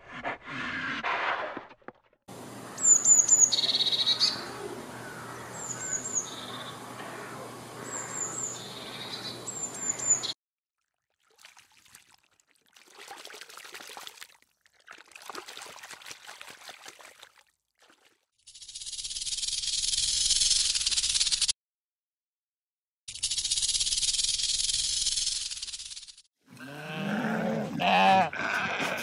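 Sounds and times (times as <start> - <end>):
blue tit calling: 2.7 - 10.4.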